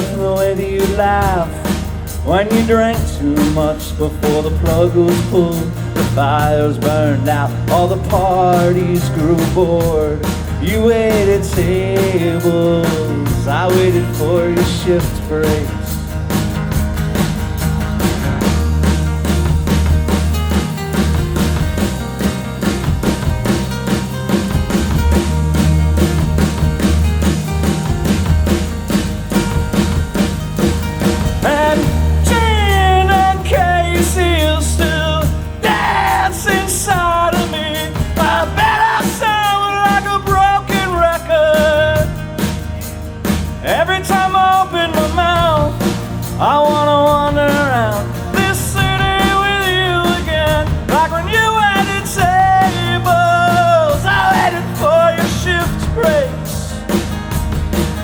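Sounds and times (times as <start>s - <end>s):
person singing: 0.0s - 15.9s, 31.4s - 42.7s, 43.6s - 56.8s
drum kit hits: 0.0s - 58.0s
punk rock band playing: 0.0s - 58.0s.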